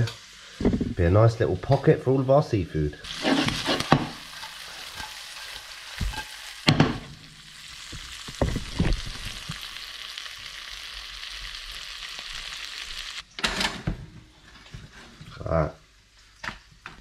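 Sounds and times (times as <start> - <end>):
food sizzling in a pan: 0.0 - 2.3, 3.0 - 13.3.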